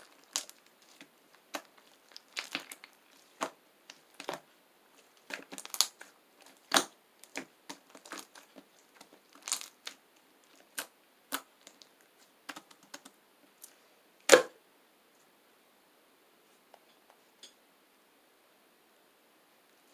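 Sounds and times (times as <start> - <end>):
slime clicking and popping: 0.1 - 4.4, 5.2 - 10.0.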